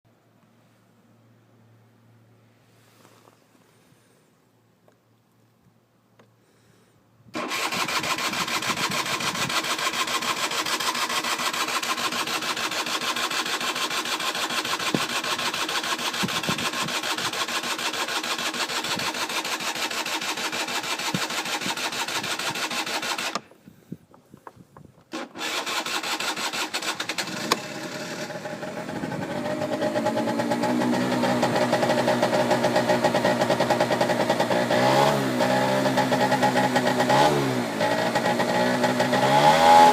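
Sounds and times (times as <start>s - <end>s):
two-stroke scooter engine: 7.3s - 23.5s, 25.1s - 39.9s.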